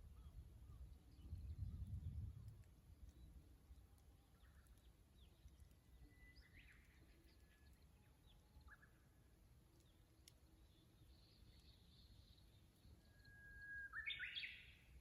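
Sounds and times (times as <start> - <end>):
distant bird song: 3.0 - 15.0
faint bird chirps: 3.0 - 15.0.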